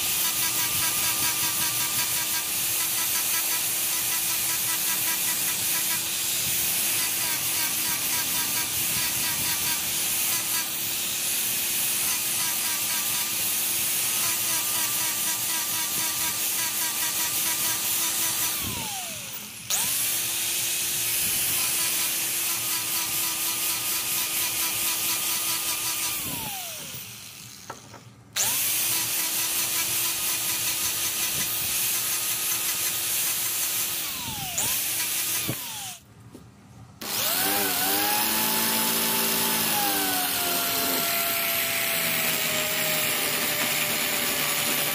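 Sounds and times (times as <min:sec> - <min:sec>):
power tool running on wood: 0:00.0 - 0:36.0, 0:37.0 - 0:44.9.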